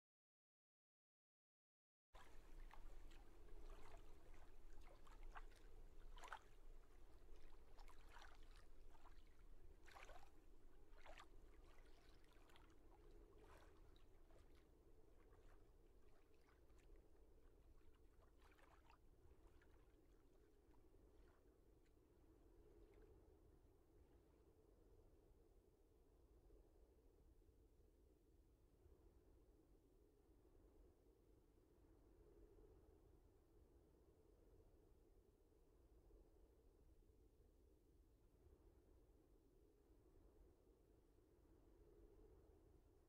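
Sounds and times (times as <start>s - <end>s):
waves lapping and splashing: 2.2s - 20.2s.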